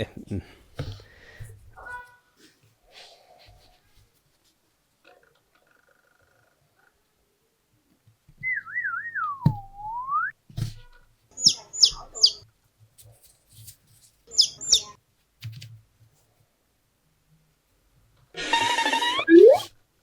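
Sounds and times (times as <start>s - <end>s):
warbling cartoon whistle: 18.4s - 19.7s
quick high chirps: 18.5s - 19.7s.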